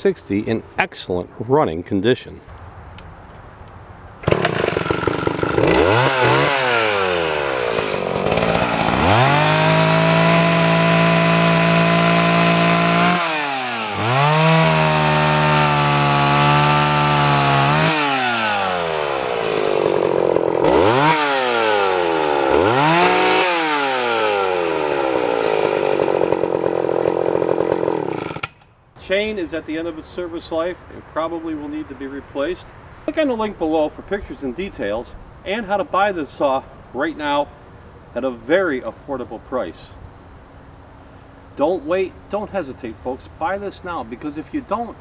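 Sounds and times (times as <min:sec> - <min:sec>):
chainsaw engine revving: 0:04.2 - 0:28.6.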